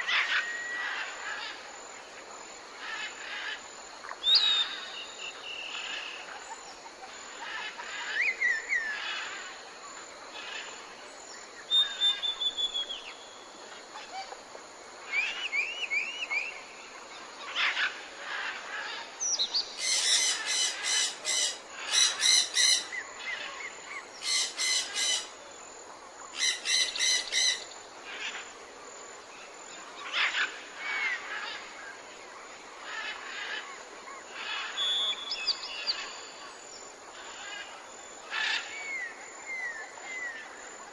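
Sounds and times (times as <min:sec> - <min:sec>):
birds whistling: 0:11.7 - 0:13.2.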